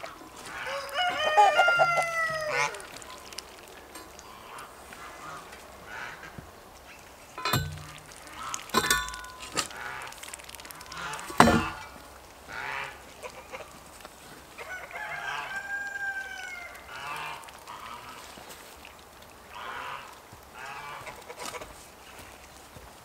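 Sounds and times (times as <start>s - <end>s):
chickens clucking: 0.0s - 6.4s
rooster crowing: 0.6s - 2.8s, 14.6s - 16.8s.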